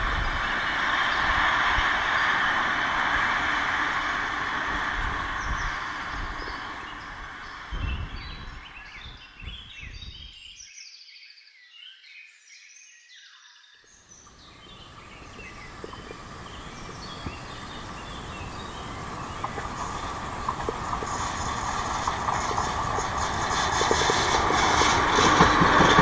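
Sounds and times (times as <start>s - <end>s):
train rumbling on rails: 0.0s - 9.0s, 14.2s - 26.0s
birds chirping: 14.0s - 26.0s.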